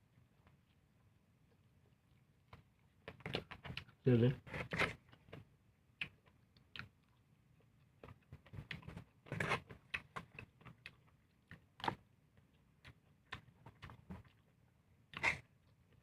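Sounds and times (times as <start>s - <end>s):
person chewing: 6.0s - 11.9s.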